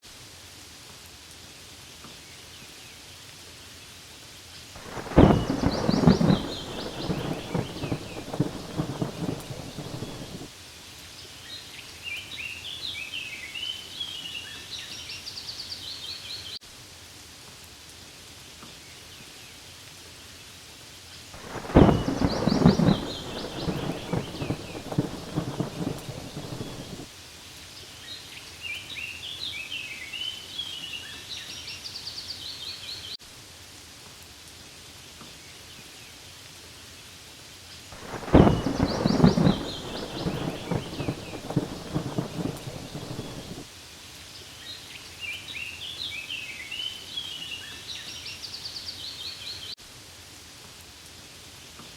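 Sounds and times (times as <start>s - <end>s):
rain falling on leaves: 0.0s - 51.9s
low rumble of thunder: 4.8s - 10.5s, 21.4s - 27.1s, 38.0s - 43.7s.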